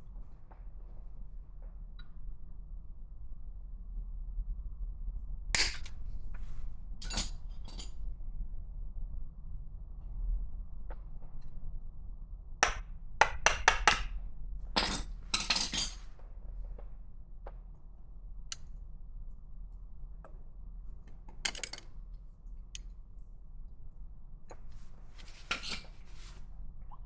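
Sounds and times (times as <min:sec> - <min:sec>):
metal tools clinking and rattling: 0:14.8 - 0:16.1.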